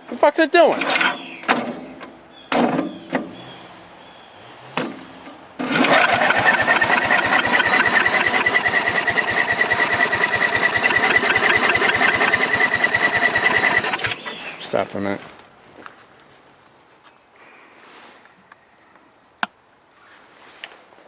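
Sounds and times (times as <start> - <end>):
engine cranking with starter whine: 0.7 - 1.4, 5.6 - 14.5.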